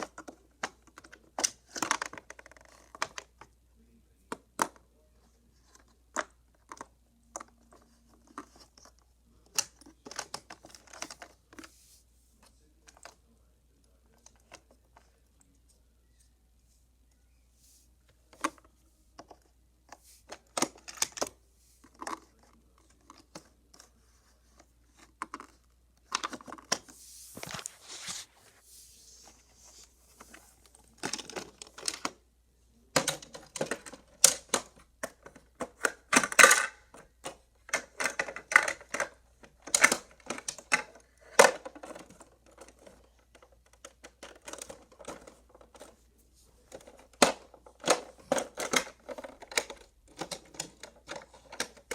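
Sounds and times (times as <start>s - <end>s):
toy cars clicking and clattering: 32.9s - 46.0s, 46.7s - 51.9s.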